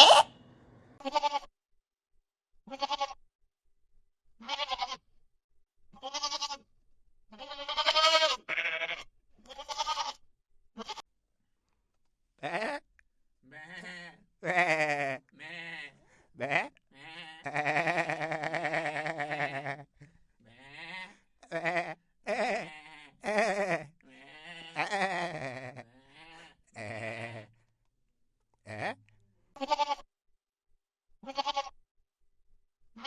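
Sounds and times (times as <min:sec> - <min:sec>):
goats or sheep bleating: 0:00.0 - 0:00.4, 0:01.0 - 0:01.5, 0:02.7 - 0:03.2, 0:04.4 - 0:05.0, 0:06.0 - 0:06.6, 0:07.3 - 0:10.2, 0:10.8 - 0:11.0, 0:12.4 - 0:12.8, 0:13.4 - 0:27.6, 0:28.6 - 0:30.1, 0:31.2 - 0:31.8.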